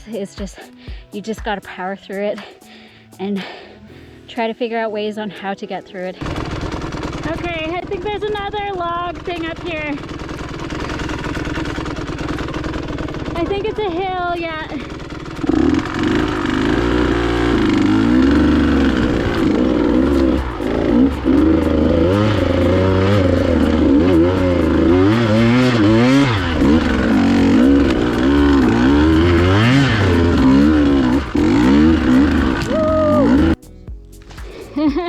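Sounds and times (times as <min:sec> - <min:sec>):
dirt bike engine revving: 0:06.2 - 0:33.6.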